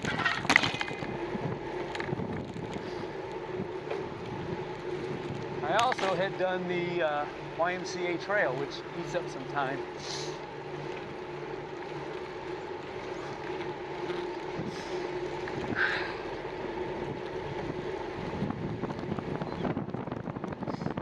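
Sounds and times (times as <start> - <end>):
wind on microphone: 0.0 - 6.2, 14.1 - 16.1, 16.9 - 21.0
bicycle tyres and drivetrain hum: 0.0 - 21.0.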